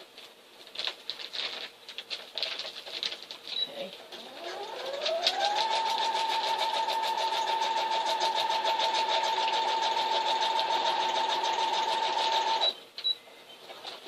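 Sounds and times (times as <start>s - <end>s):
electric sewing machine running: 4.2s - 12.7s.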